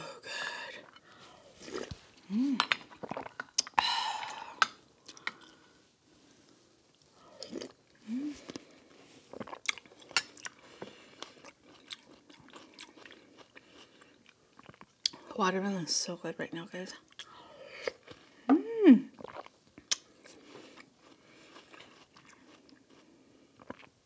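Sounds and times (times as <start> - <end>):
wet mouthful eating: 0.8 - 5.7, 7.3 - 15.3, 19.1 - 24.0
closed-mouth hum: 7.0 - 9.5
chewing with mouth clicks: 9.3 - 15.2, 19.2 - 24.0.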